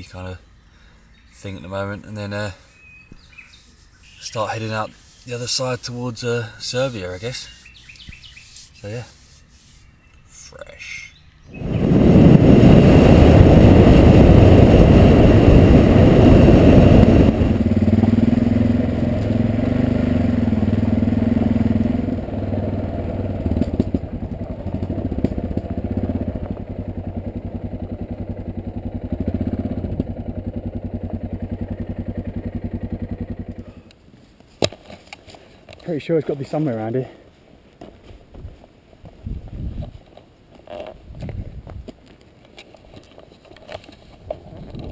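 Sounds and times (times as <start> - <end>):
motorcycle engine running: 11.5 - 33.9
heavy rushing noise: 11.6 - 19.0.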